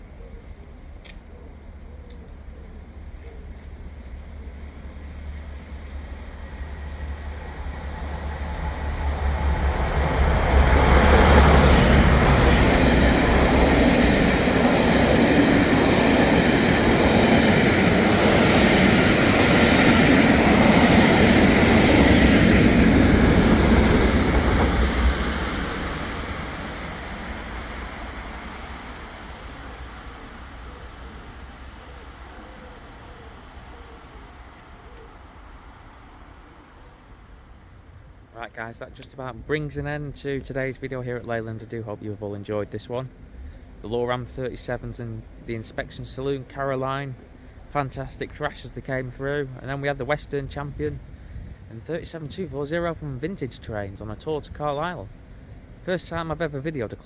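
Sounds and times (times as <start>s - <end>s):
train passing rumble: 0.0s - 57.0s.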